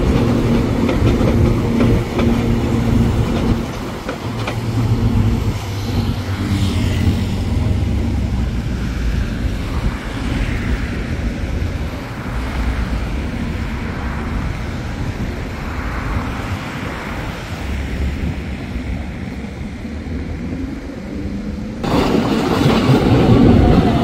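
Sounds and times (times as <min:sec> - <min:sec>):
background traffic: 0:00.0 - 0:24.0
trains rumbling on tracks: 0:00.0 - 0:24.0.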